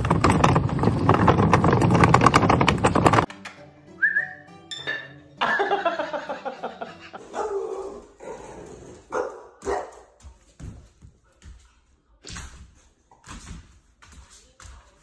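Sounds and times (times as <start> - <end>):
dog barking: 7.3 - 10.2.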